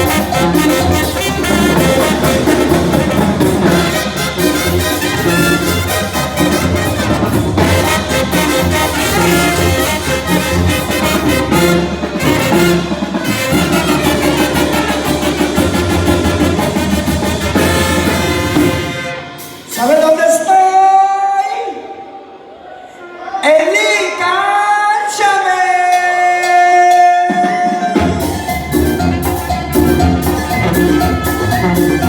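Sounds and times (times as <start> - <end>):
brass band playing: 0.0 - 20.6, 27.3 - 32.0.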